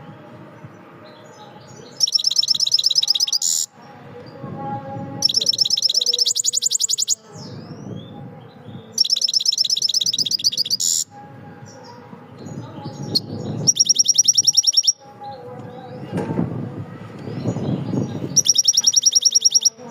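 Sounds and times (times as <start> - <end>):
soft bird chirps: 1.1 - 3.7, 5.2 - 11.1, 11.8 - 16.0, 17.2 - 19.8
songbird trilling: 1.2 - 3.8, 5.2 - 15.0, 17.3 - 19.9.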